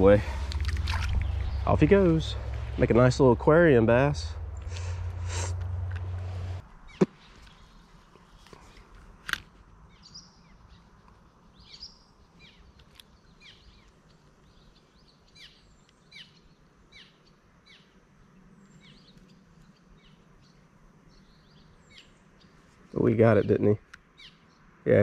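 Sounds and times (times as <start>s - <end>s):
bird singing falling chirps: 0.0s - 3.3s, 9.9s - 17.9s.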